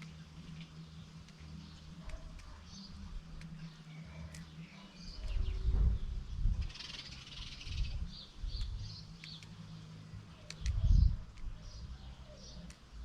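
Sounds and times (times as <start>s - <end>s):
birds chirping: 0.0s - 13.0s
low rumbling thumps: 5.2s - 6.8s.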